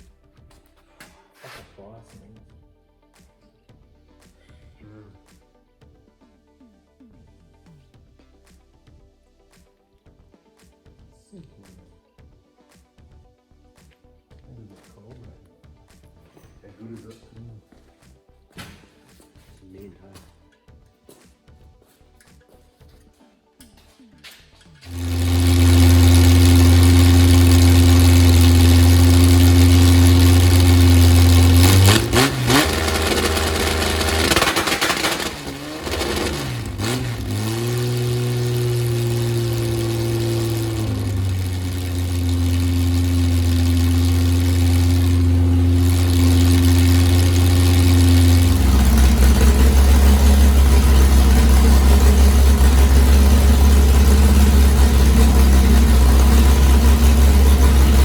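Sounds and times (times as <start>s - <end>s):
engine idling: 24.9s - 58.0s.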